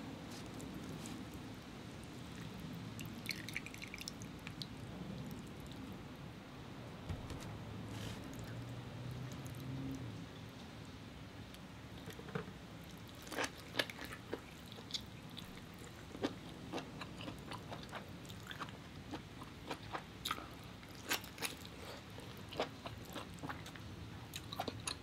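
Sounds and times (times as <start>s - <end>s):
person chewing wetly: 12.8s - 25.0s.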